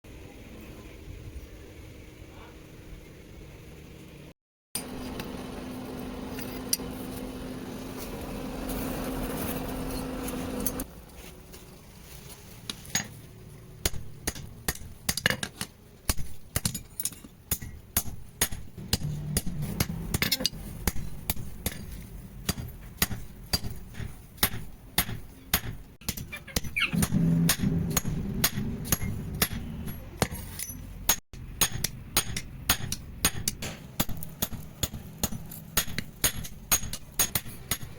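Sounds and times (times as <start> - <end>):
hammer striking metal: 16.1 - 37.9
steady low hum: 26.9 - 37.9.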